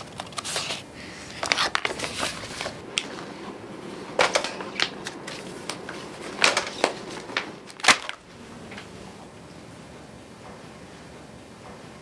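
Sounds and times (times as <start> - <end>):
paper rustling and tapping: 4.2 - 8.2.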